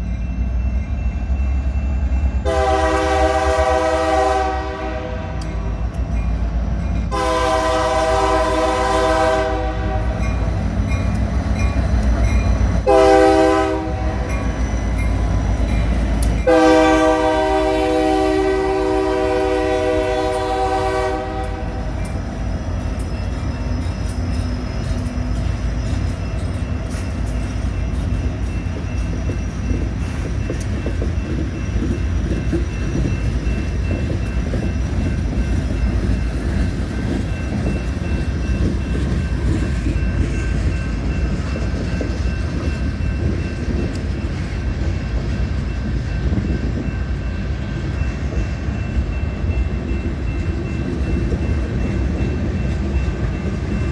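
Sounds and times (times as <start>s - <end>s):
freight train cars rolling past: 0.0s - 53.9s
locomotive horn: 2.4s - 5.6s, 7.1s - 10.2s, 12.8s - 14.4s, 16.4s - 22.0s.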